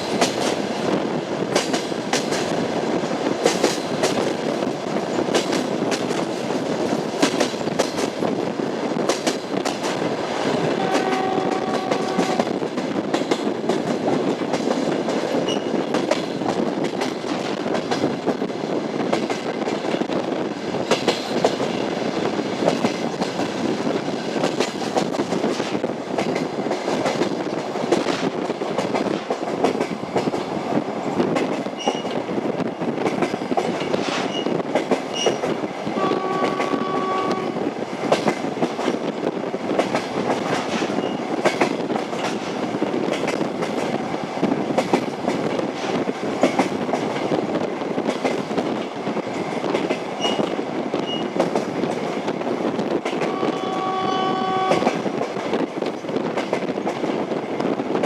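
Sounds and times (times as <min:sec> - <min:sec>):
train rumble: 0:00.0 - 0:58.0
train wheels clattering: 0:00.0 - 0:58.0
train horn: 0:10.7 - 0:12.6, 0:36.0 - 0:37.7, 0:53.2 - 0:55.1.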